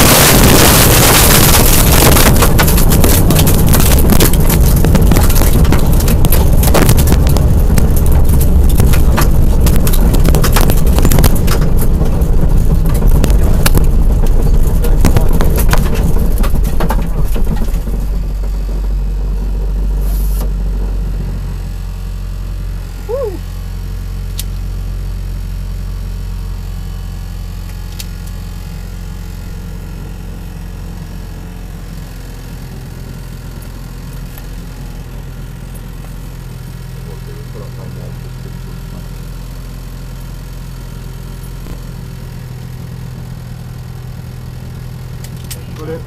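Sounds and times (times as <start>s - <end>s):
tyres crunching on gravel: 0.0s - 18.8s
car engine idling: 0.0s - 46.0s.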